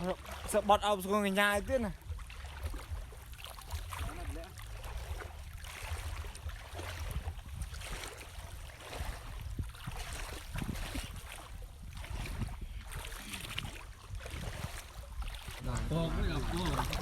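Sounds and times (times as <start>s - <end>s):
floodwater splashing: 0.0s - 17.0s
wind rumble on microphone: 1.5s - 17.0s.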